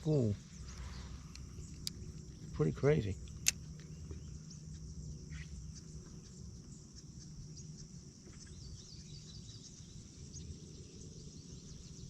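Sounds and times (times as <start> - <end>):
bird chirping: 0.0 - 4.7.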